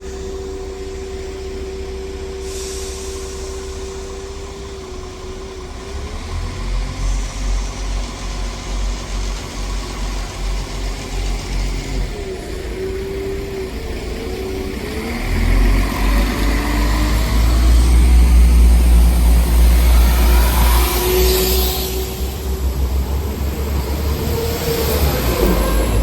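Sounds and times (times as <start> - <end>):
diesel train engine whine: 0.0 - 26.0
hiss of air: 2.3 - 4.3, 17.3 - 23.8.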